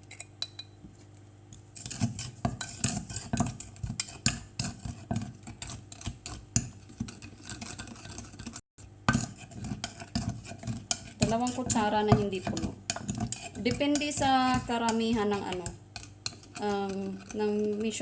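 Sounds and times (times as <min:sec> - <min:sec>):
pestle pounding in a mortar: 0:09.0 - 0:18.0.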